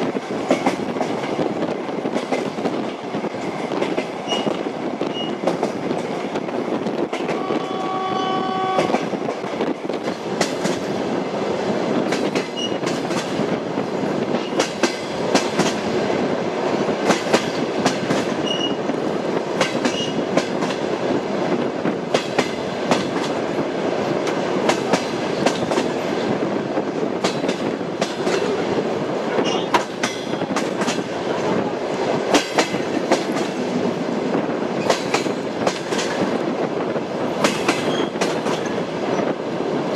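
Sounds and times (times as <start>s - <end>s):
train wheels rumbling on track: 0.0s - 39.9s
train horn: 7.2s - 9.2s.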